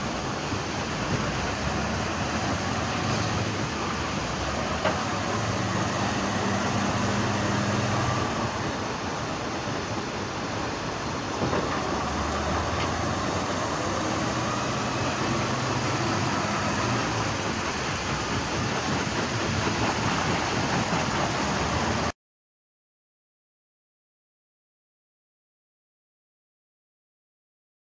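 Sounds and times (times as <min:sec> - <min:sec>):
heavy diesel machinery running: 0:00.0 - 0:22.2.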